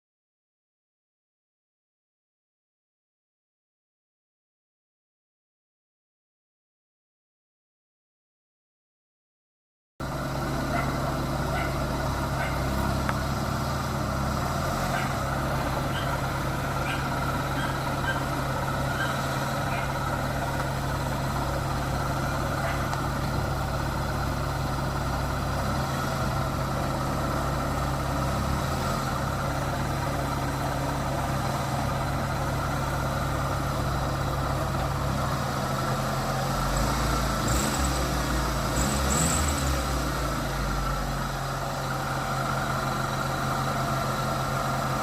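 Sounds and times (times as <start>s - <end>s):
engine idling: 10.0s - 45.0s.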